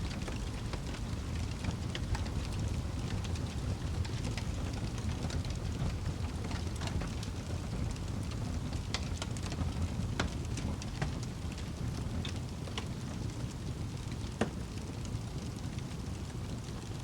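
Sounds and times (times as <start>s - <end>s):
flames rumbling: 0.0s - 17.0s
wood crackling and popping: 0.0s - 17.0s.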